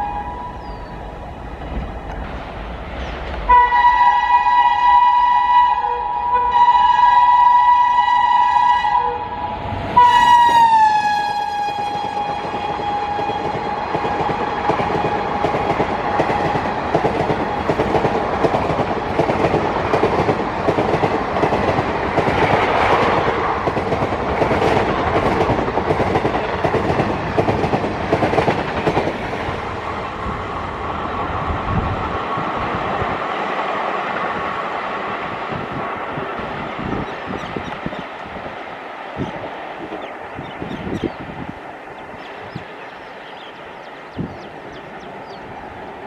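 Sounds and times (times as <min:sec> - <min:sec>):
train horn blast: 0:00.0 - 0:00.8, 0:03.5 - 0:14.8
train coaches rumbling past: 0:00.0 - 0:46.0.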